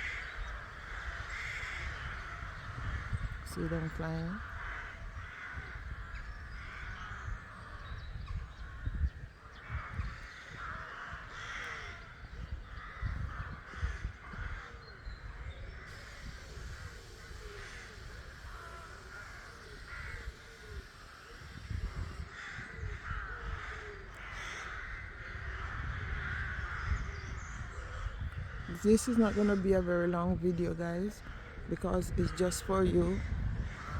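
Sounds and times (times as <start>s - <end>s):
ravens cawing: 0.0s - 7.6s, 9.6s - 14.9s, 15.8s - 30.0s.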